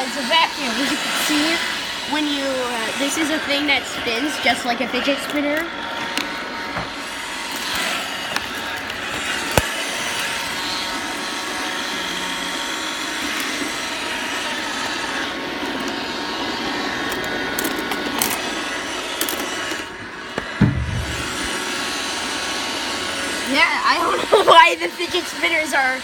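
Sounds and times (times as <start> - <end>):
robot vacuum motor and brush: 0.0 - 26.0.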